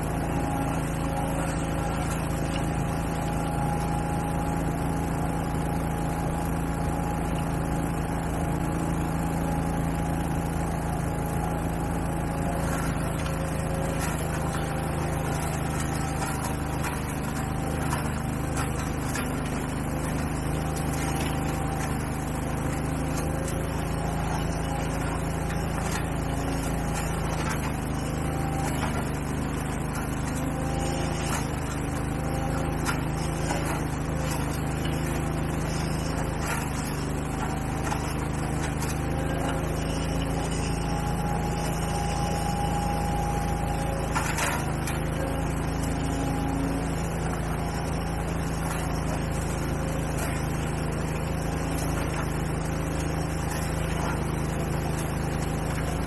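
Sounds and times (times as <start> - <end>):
power equipment engine running: 0.0 - 56.0.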